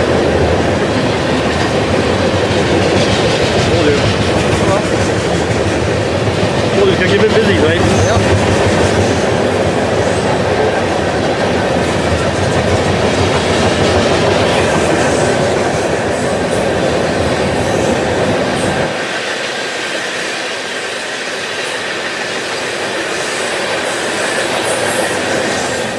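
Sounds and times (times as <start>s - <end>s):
deep train rumble: 0.0s - 25.9s
train wheels on rails: 0.0s - 25.9s.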